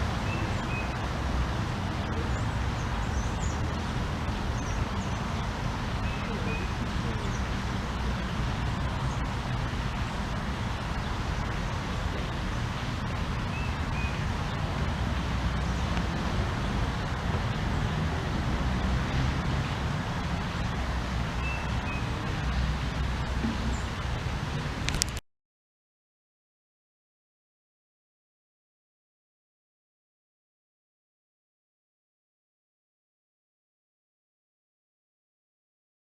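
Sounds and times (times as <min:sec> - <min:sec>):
distant road traffic rumble: 0:00.0 - 0:25.2.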